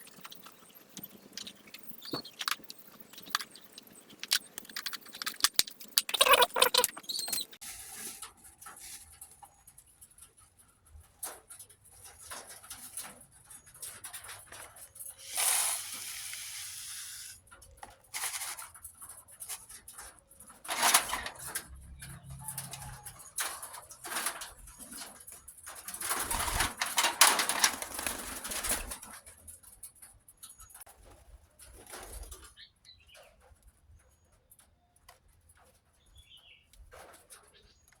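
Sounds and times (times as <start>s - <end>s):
plastic tub crinkling and clicking: 0.0s - 7.6s.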